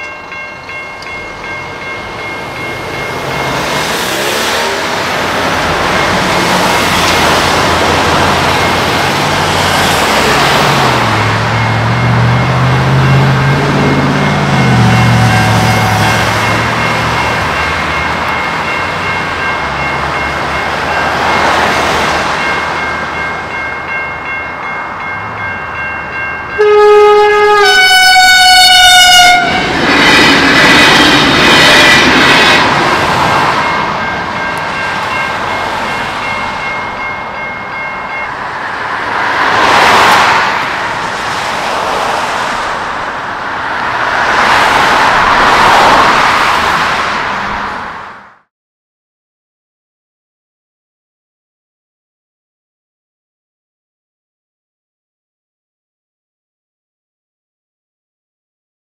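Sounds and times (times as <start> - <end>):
level crossing bells ringing: 0.0 - 41.1
train rumble and clatter: 0.0 - 48.1
road vehicles passing: 0.0 - 48.4
train horn: 4.0 - 5.1, 14.3 - 16.6, 26.6 - 29.7.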